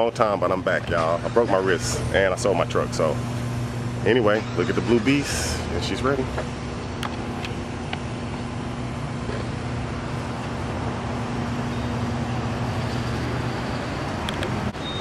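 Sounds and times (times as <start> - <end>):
road noise: 0.0 - 15.0
vehicle engine hum: 0.0 - 15.0.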